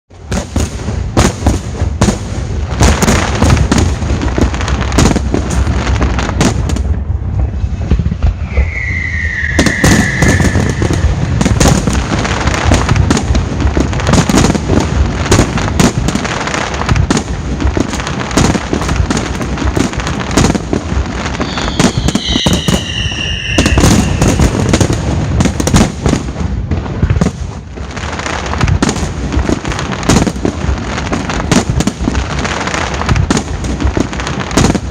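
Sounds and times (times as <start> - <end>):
firework bursts and crackling bangs: 0.1 - 34.9
falling firework whistle: 8.1 - 12.0, 21.2 - 25.0.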